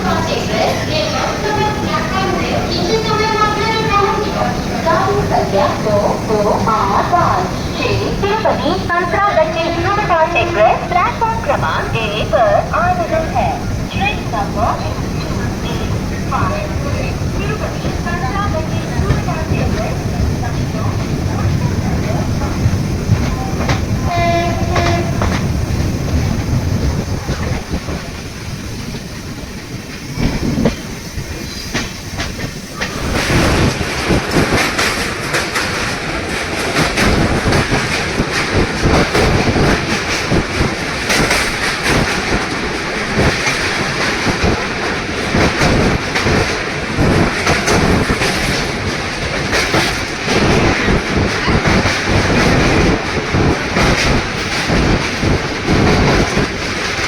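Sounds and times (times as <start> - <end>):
train wheels clattering over rails: 0.0 - 57.0
train horn: 24.0 - 25.5.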